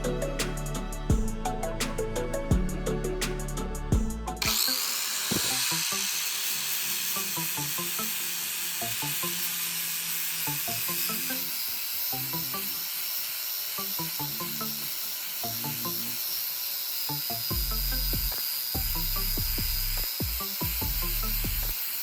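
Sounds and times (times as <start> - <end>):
soft background music: 0.0 - 16.4
power tool hissing: 4.4 - 22.0.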